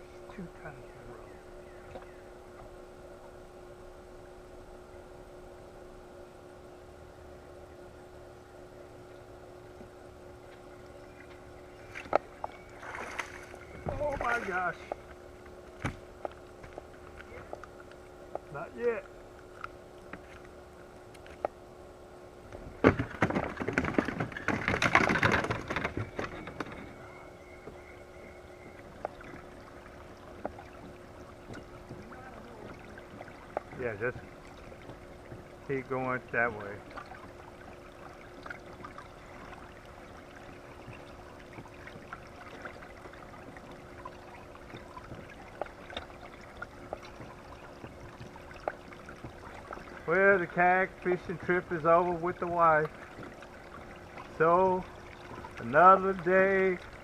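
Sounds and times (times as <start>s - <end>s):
creek water trickling: 0.0s - 57.0s
small drips and splashes: 10.5s - 18.6s, 28.7s - 57.0s.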